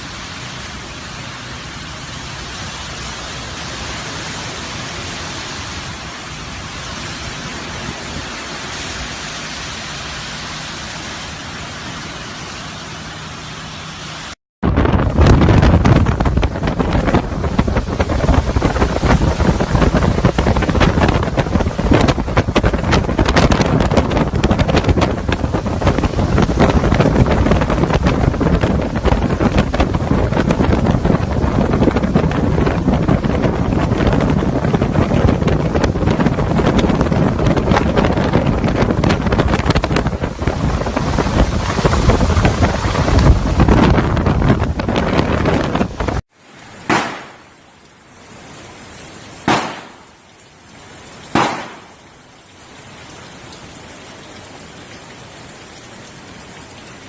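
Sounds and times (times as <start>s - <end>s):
strong wind buffeting microphone: 14.6s - 46.3s.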